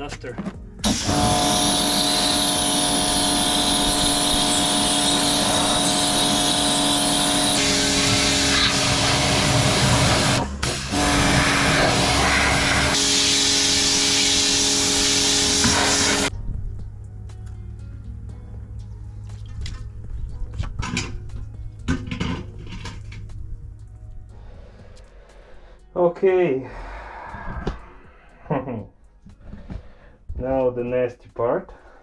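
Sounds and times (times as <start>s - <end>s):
pressure washer motor humming: 0.4s - 23.9s
water jet hissing on surface: 0.8s - 16.3s.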